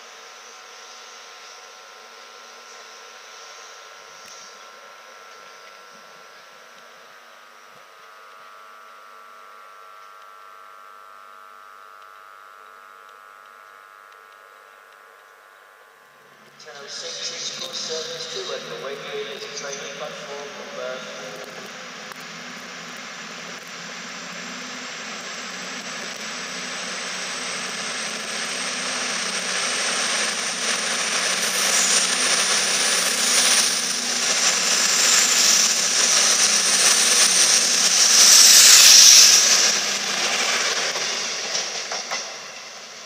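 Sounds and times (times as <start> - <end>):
high whine: 0.0 - 43.0
diesel train engines: 15.8 - 43.0.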